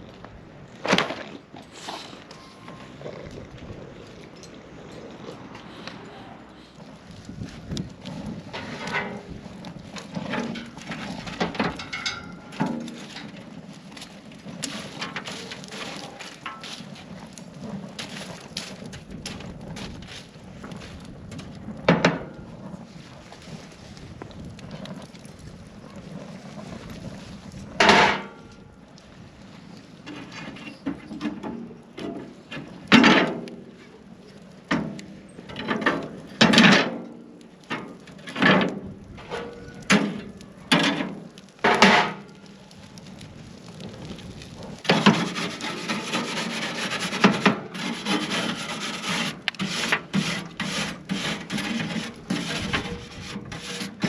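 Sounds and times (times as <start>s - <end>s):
rasping strokes against wood: 44.9s - 54.0s.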